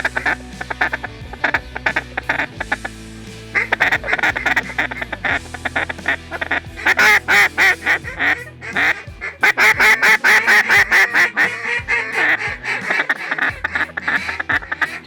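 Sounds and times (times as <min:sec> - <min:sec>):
waterfowl quacks and honks: 0:03.6 - 0:15.0.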